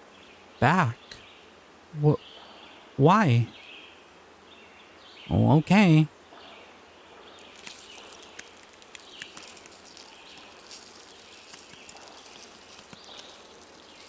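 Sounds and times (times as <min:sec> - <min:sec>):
soft steady hiss: 0:00.0 - 0:14.0
faint chirps: 0:05.2 - 0:14.0
small clicks: 0:07.4 - 0:14.0.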